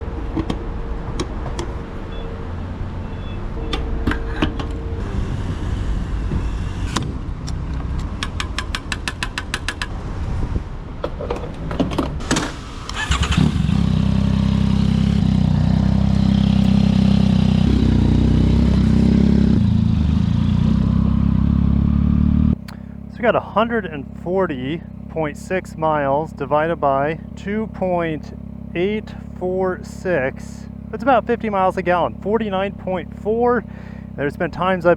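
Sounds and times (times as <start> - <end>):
motorcycle engine starting and running: 0.0 - 34.9.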